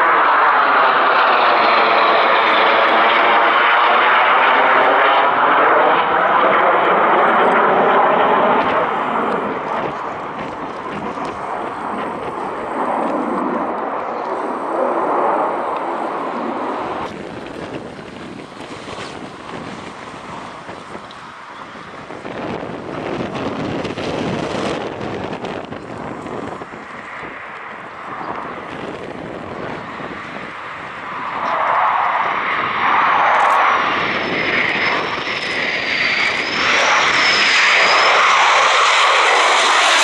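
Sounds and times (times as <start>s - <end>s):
military aircraft engines: 0.0s - 40.0s.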